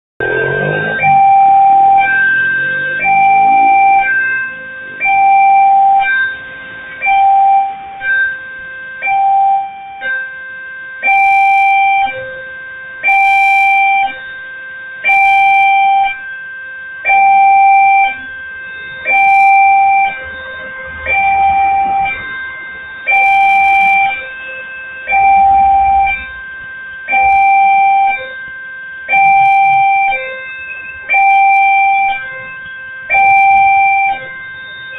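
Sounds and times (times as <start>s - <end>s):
level crossing two-tone chime: 0.2s - 8.4s.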